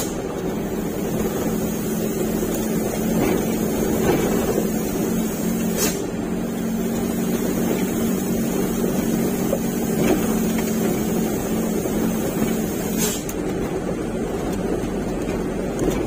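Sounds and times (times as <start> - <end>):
truck diesel engine running: 0.0 - 16.0.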